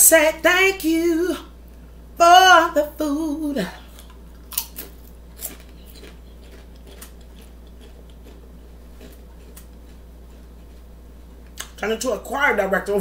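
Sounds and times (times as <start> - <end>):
steady low hum: 0.0 - 13.0
crunchy chip chewing: 3.8 - 10.9.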